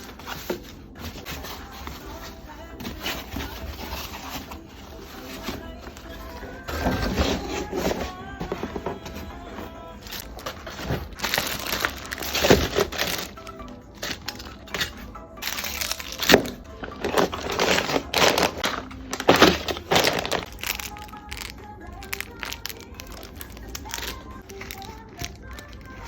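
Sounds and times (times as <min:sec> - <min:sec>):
plastic and cardboard crinkling: 0:00.0 - 0:26.0.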